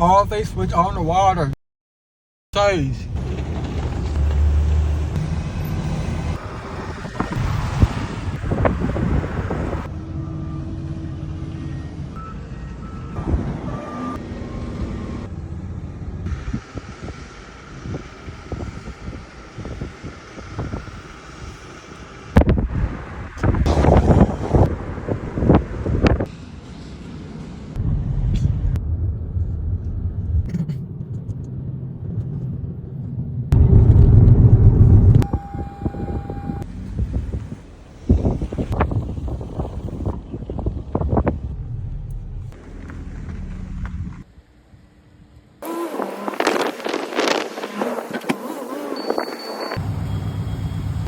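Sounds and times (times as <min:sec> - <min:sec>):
vehicle rumble on road: 0:03.0 - 0:51.0
faint short beeps: 0:35.2 - 0:36.6, 0:48.9 - 0:51.0.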